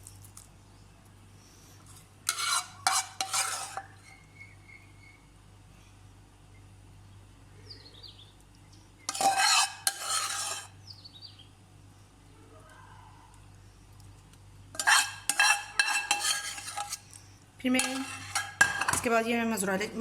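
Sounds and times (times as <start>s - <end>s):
spoon scraping a dish: 2.3s - 4.1s, 9.1s - 10.8s, 14.7s - 19.1s.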